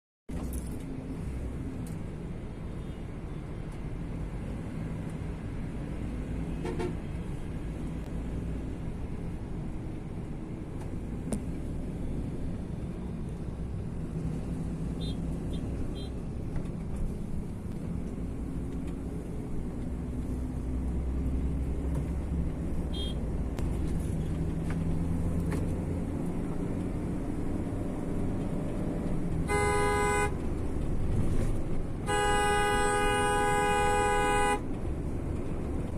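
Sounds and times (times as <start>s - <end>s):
vehicle engine and road rumble: 0.3s - 35.9s
vehicle horn: 6.5s - 7.1s, 22.9s - 23.2s, 29.4s - 30.4s, 32.0s - 34.6s.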